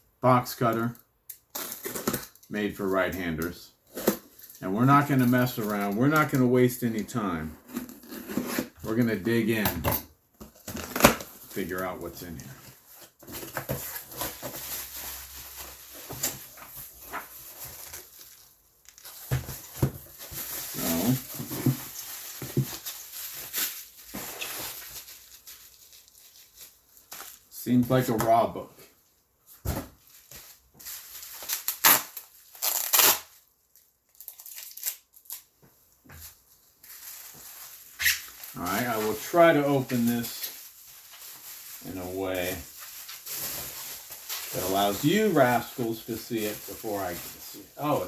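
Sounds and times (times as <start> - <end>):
packing material crinkling: 10.6 - 27.6, 30.0 - 35.5, 36.5 - 48.0.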